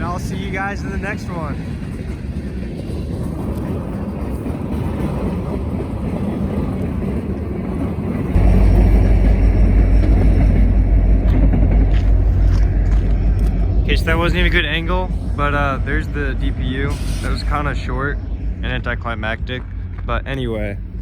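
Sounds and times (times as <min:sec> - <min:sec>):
diesel locomotive heavy rumble: 0:00.0 - 0:21.0
freight train rumbling: 0:00.0 - 0:21.0.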